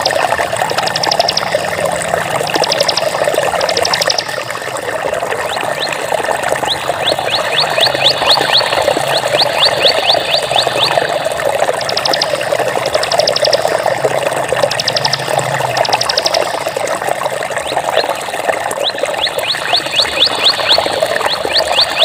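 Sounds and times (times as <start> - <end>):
rapid high clicking: 0.0 - 4.5, 6.7 - 16.8
water flowing: 0.0 - 22.0.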